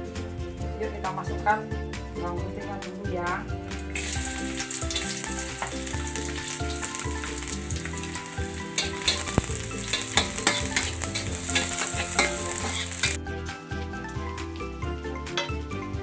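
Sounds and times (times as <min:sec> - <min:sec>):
garlic sizzling in oil: 0:03.6 - 0:16.0
metal spatula scraping a wok: 0:03.8 - 0:13.2, 0:15.1 - 0:16.0.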